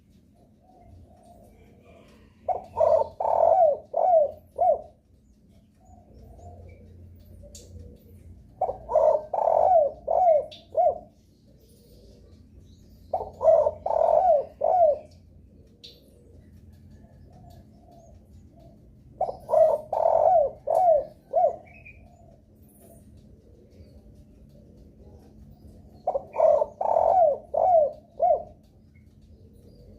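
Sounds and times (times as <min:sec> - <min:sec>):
dove cooing: 0:00.0 - 0:29.9.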